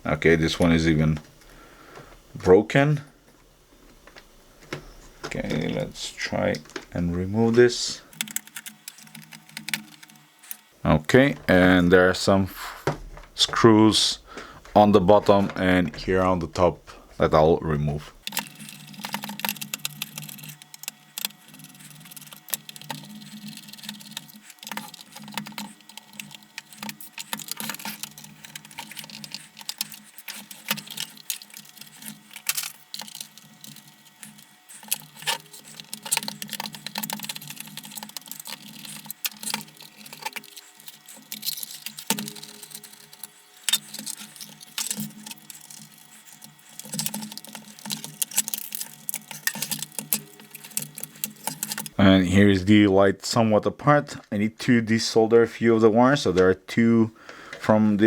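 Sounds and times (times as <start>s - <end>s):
plastic and metal parts clicking: 8.0s - 10.7s, 18.2s - 52.0s.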